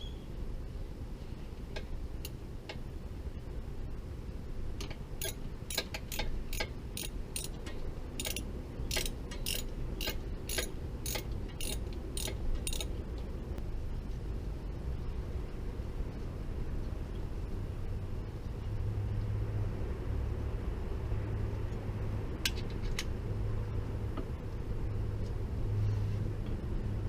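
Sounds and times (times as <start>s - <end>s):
steady low hum: 0.0s - 27.0s
hand tools clicking on metal: 4.8s - 12.9s.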